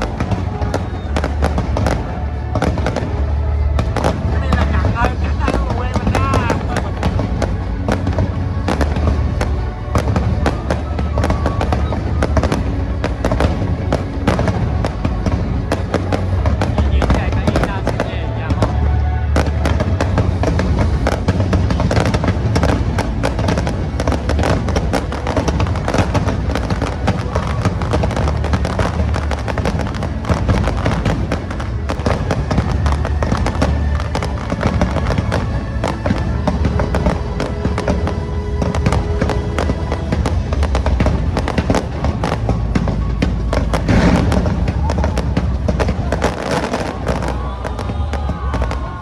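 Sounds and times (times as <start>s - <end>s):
fireworks bangs and crackles: 0.0s - 49.0s
loud music: 0.0s - 49.0s.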